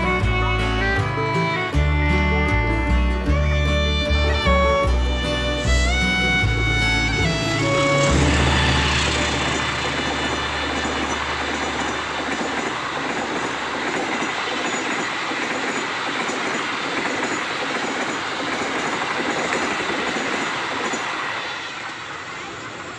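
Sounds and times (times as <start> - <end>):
fast train rushing past: 0.0 - 1.8, 3.3 - 22.9
deep rumble: 5.1 - 12.5
wheels clattering over rails: 5.1 - 22.9.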